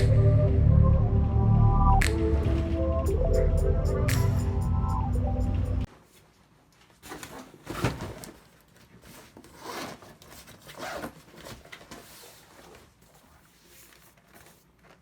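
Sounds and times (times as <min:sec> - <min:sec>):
background music: 0:00.0 - 0:05.9
rustling and scraping handling: 0:05.9 - 0:15.0.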